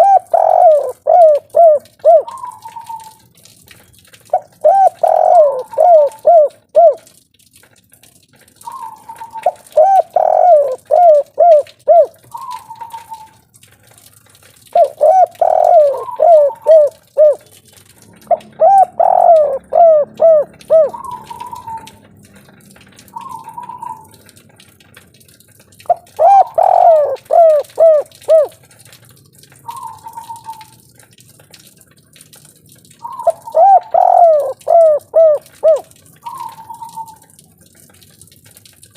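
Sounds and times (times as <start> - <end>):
dove cooing: 0.0 - 3.2, 4.3 - 7.1, 8.7 - 13.4, 14.7 - 17.5, 18.2 - 22.1, 23.2 - 24.2, 25.9 - 28.6, 29.6 - 30.8, 33.0 - 37.2.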